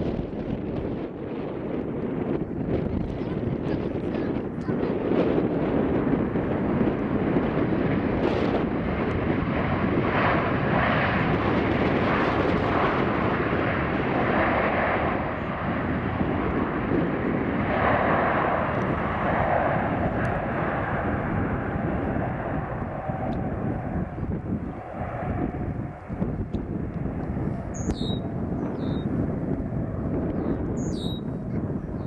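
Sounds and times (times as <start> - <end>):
jet airliner engines: 0.0 - 32.0.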